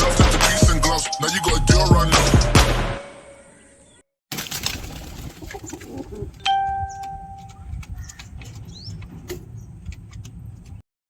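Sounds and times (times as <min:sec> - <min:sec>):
pigeons cooing: 0:04.4 - 0:09.8
scattered clicks: 0:06.3 - 0:10.8
ringing bell-like tone: 0:06.4 - 0:07.5.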